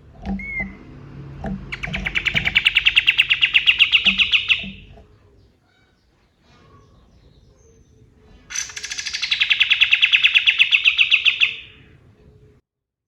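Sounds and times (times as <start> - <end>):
songbird rapid trill: 1.7 - 5.0, 8.5 - 11.8.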